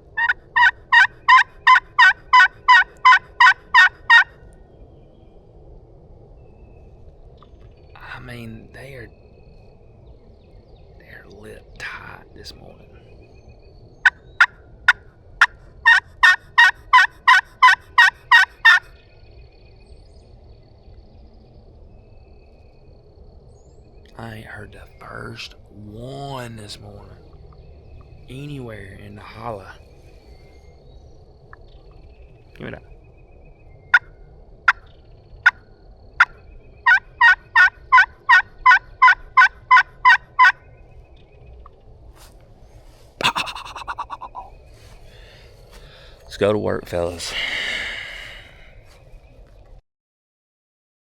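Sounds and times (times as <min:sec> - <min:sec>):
turkey call yelps: 0:00.1 - 0:04.3, 0:14.0 - 0:18.9, 0:36.2 - 0:40.6, 0:43.2 - 0:44.5
turkey call clucks: 0:00.2 - 0:04.3, 0:14.0 - 0:18.9, 0:36.9 - 0:40.6, 0:43.2 - 0:46.0.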